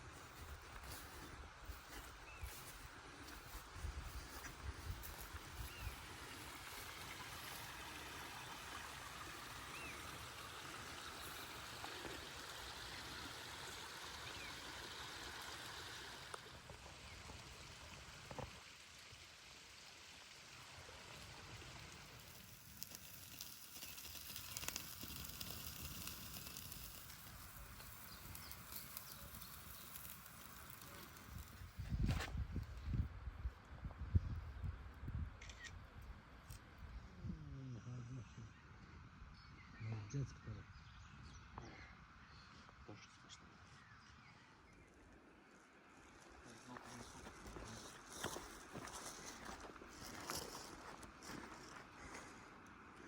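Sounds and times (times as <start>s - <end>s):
wind rumble on microphone: 0.0s - 6.2s, 31.4s - 36.2s.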